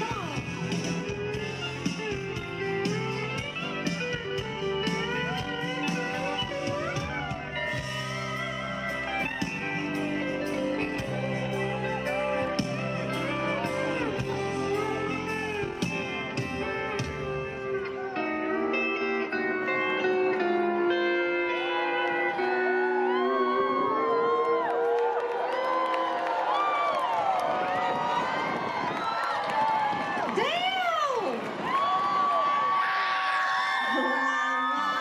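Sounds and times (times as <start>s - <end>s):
country band playing: 0.0s - 24.4s
lead guitar solo: 0.0s - 29.3s.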